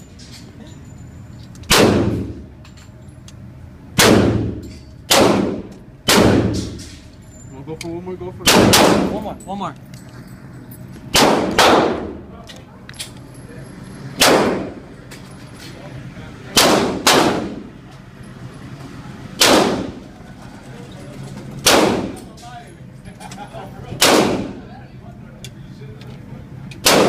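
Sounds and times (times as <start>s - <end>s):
gunshots with echo: 8.4s - 9.1s, 11.1s - 12.2s, 14.2s - 14.8s, 16.6s - 17.7s, 19.4s - 20.0s, 21.6s - 22.2s, 24.0s - 24.6s.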